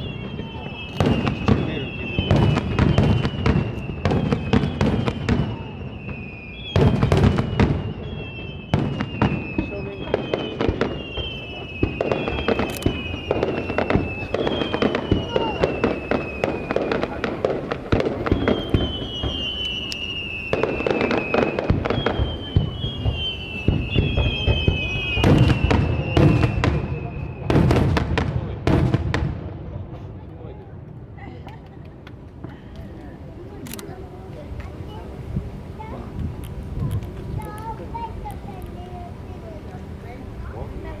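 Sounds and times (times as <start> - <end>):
firework shells bursting: 0.0 - 26.8.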